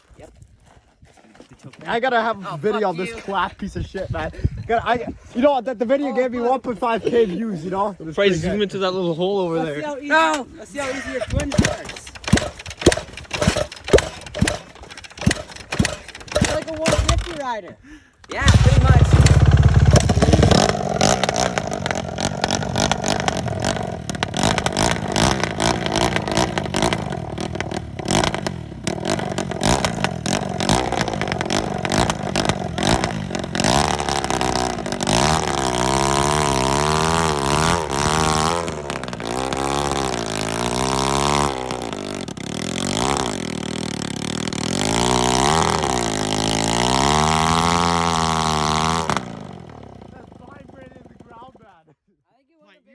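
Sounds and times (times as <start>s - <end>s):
motorcycle engine revving: 11.0s - 17.5s, 18.3s - 51.7s.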